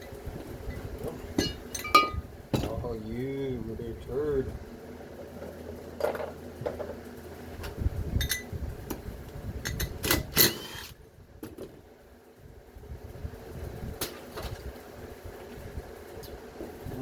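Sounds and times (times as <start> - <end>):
low steady hum: 0.0 - 17.0
metal tools clinking: 0.7 - 2.7.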